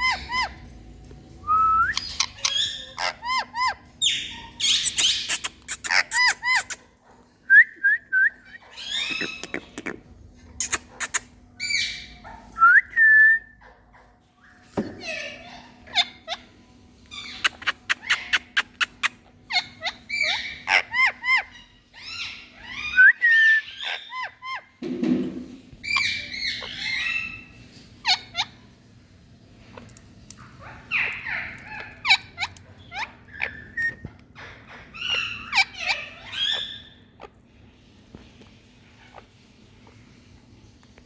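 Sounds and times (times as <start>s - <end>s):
parakeet chattering: 2.0s - 7.0s, 8.5s - 12.3s, 17.1s - 22.9s, 29.7s - 37.4s.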